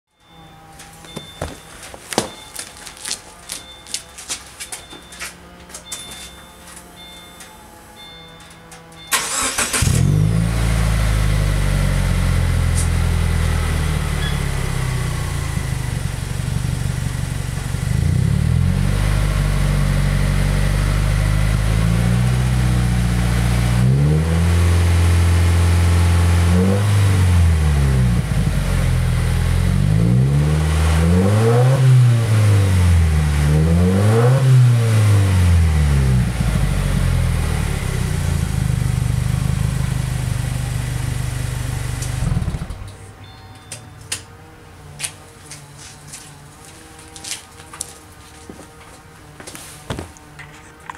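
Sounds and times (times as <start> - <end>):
car engine starting: 6.8 - 43.1
car engine idling: 8.6 - 26.5, 35.7 - 43.0
car engine revving: 8.9 - 43.0.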